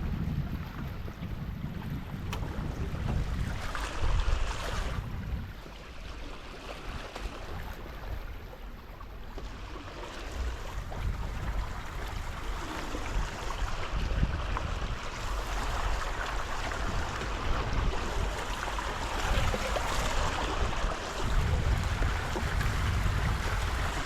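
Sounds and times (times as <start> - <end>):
water rushing along boat hulls: 0.0 - 24.0
wind buffeting microphone: 0.0 - 24.0.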